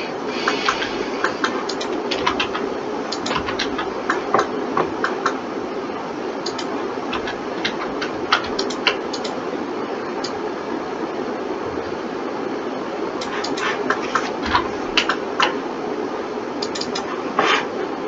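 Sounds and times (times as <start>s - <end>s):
steady background hum: 0.0s - 18.0s
mouse and keyboard clicks: 0.4s - 5.4s, 6.4s - 9.4s, 13.2s - 15.6s, 16.6s - 17.7s.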